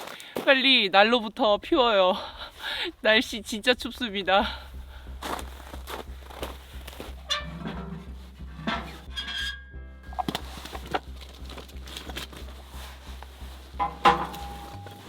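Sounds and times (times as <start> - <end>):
quiet background music with beat: 3.6 - 15.0
metal items clinking: 7.0 - 12.7, 13.7 - 15.0.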